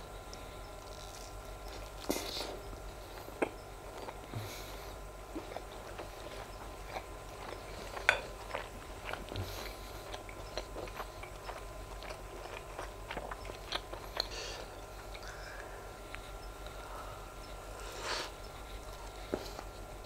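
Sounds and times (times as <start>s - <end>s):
chewing with wet mouth clicks: 0.3s - 4.4s, 5.3s - 16.8s.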